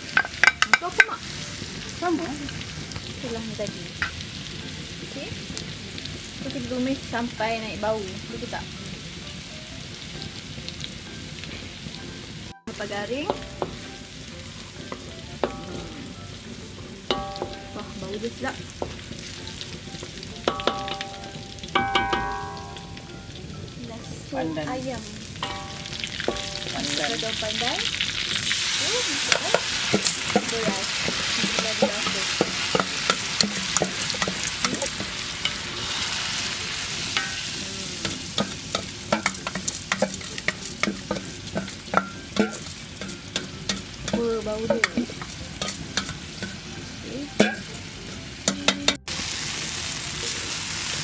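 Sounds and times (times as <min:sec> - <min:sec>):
spatula scraping and tapping wok: 0:00.0 - 0:06.8, 0:12.9 - 0:23.0, 0:25.3 - 0:49.2
food sizzling in butter: 0:00.0 - 0:51.0.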